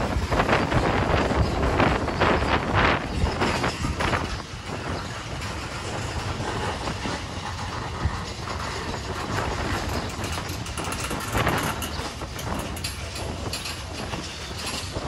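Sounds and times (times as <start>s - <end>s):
railcars rumbling and rattling: 0.0s - 15.0s.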